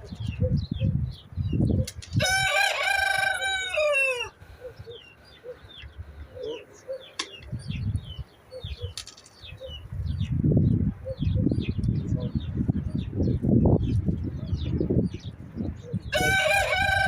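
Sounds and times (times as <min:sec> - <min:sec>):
small birds chirping: 0:00.0 - 0:02.2, 0:04.3 - 0:17.0
rooster crowing: 0:02.2 - 0:04.4, 0:16.1 - 0:17.0.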